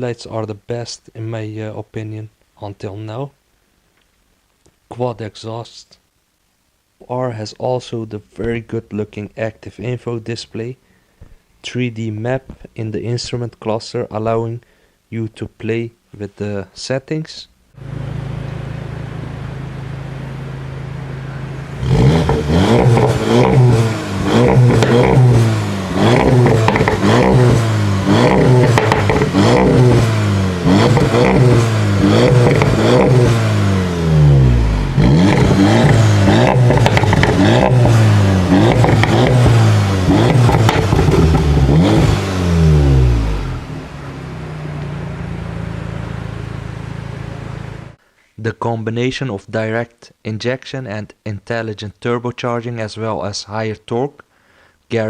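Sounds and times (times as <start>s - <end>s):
car engine idling: 17.8s - 48.0s
car engine revving: 17.8s - 48.0s.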